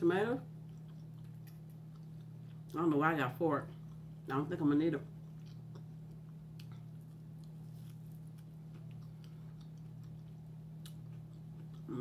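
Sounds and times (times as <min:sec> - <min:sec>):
steady low hum: 0:00.0 - 0:12.0
crunchy chewing clicks: 0:00.6 - 0:02.8, 0:03.7 - 0:04.1, 0:05.1 - 0:12.0.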